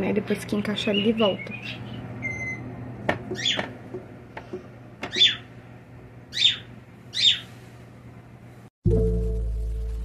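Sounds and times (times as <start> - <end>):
bird calling: 3.3 - 3.7, 5.1 - 5.5, 6.3 - 7.5.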